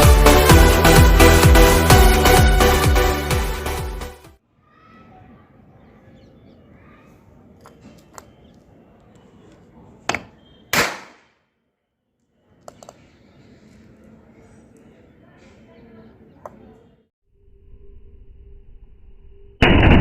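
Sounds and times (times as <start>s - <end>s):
sharp bangs: 10.7s - 11.4s, 19.6s - 20.0s.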